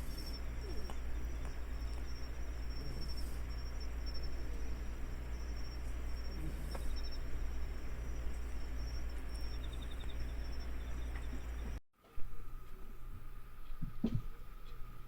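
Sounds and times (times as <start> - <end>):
high insect chirping: 0.0 - 11.8
steady whine: 0.0 - 14.2
low hum: 0.0 - 15.0.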